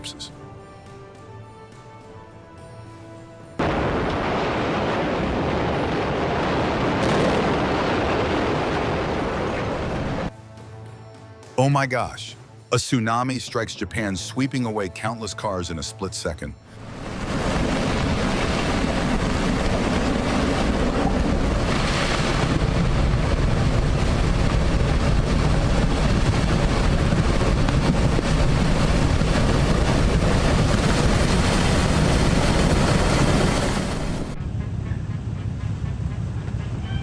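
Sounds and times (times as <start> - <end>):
floodwater rushing: 3.6 - 10.3, 16.7 - 34.4
wind buffeting microphone: 16.8 - 37.0.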